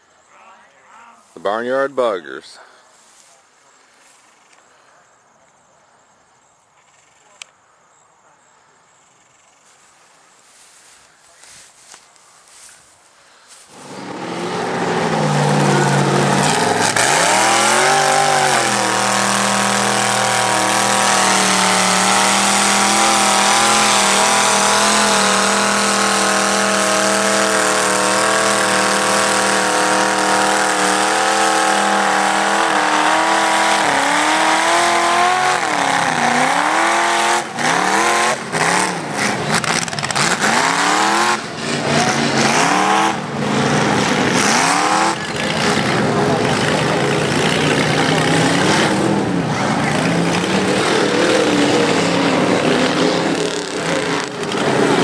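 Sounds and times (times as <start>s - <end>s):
vehicle engine revving: 13.6s - 55.0s.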